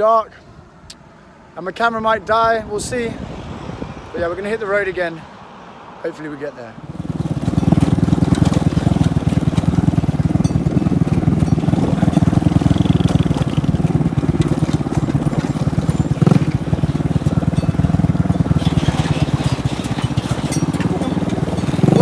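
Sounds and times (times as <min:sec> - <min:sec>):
motorbike engine running: 0:06.8 - 0:22.0.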